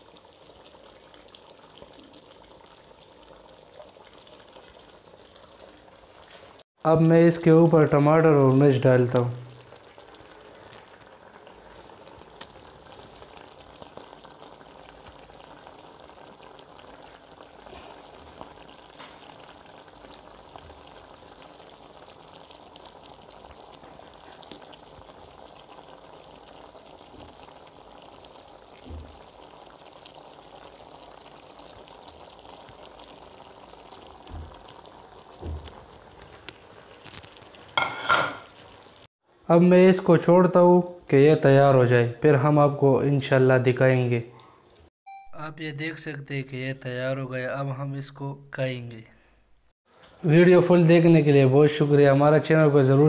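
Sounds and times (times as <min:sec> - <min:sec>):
chicken frying in oil: 0:00.0 - 0:40.6.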